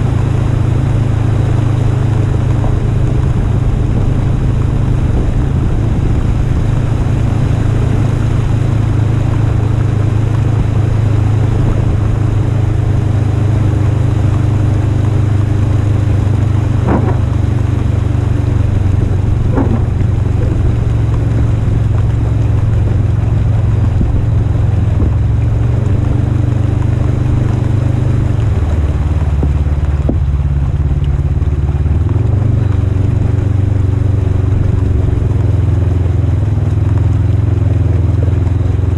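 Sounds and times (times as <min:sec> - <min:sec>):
vehicle engine droning: 0:00.0 - 0:38.9
brief knocks: 0:16.8 - 0:17.4.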